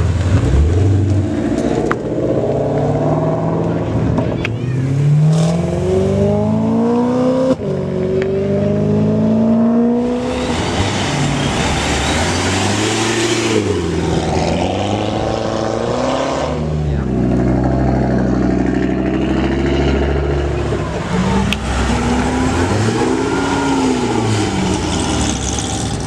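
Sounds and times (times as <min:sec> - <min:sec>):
car engine accelerating: 0:00.0 - 0:26.0
loud rushing noise: 0:09.9 - 0:16.6.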